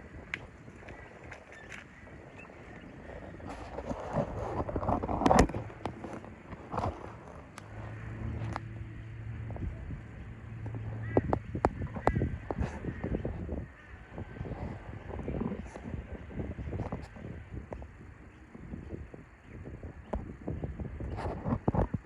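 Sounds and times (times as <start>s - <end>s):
low engine hum: 0.0s - 22.0s
motor vehicle passing: 4.2s - 15.0s.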